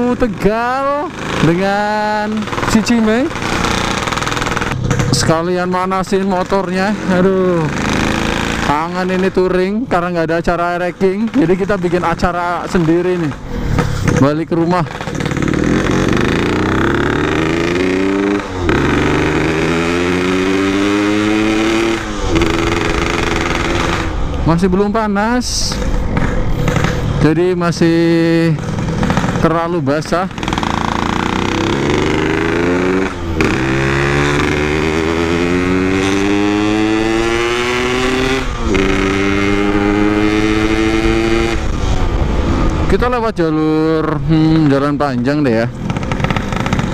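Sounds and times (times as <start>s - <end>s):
person speaking: 0.0s - 3.4s, 5.1s - 7.8s, 8.6s - 15.0s, 24.4s - 25.9s
two-stroke motorcycle engine accelerating: 0.0s - 46.9s.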